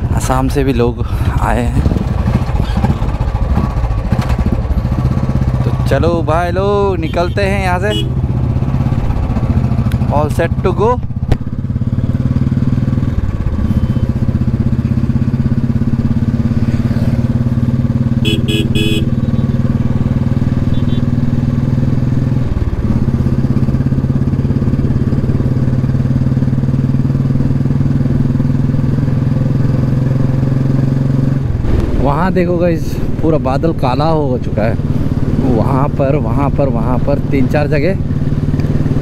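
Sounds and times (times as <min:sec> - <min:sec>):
motorcycle engine running: 0:00.0 - 0:39.0
horn beeps: 0:13.6 - 0:14.2, 0:18.2 - 0:19.6, 0:20.7 - 0:21.0.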